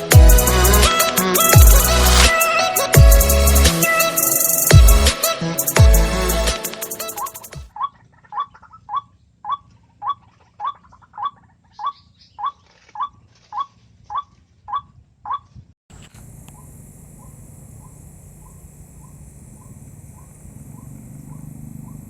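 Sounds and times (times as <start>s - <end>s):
background hiss: 0.4s - 7.5s, 15.9s - 22.0s.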